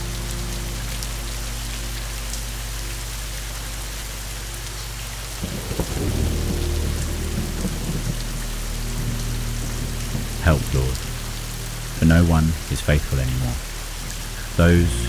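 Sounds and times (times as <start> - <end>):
steady rain falling: 0.0 - 15.0
thunder rumbling: 5.4 - 15.0.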